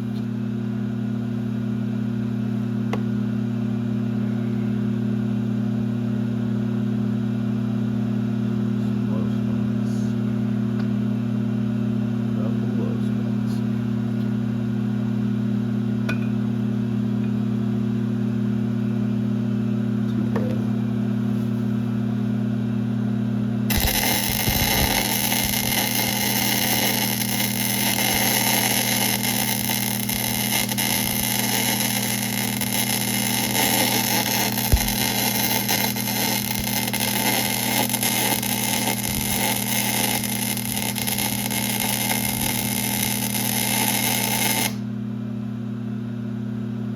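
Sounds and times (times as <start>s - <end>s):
lathe humming: 23.7s - 44.8s
loud rough machine noise: 23.7s - 44.8s.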